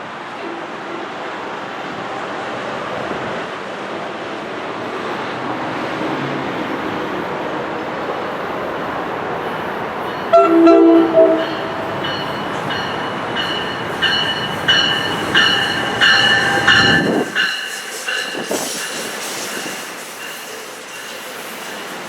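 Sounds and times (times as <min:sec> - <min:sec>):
low train rumble: 0:00.0 - 0:22.0
train wheels squealing: 0:10.1 - 0:22.0
train horn: 0:10.3 - 0:12.4.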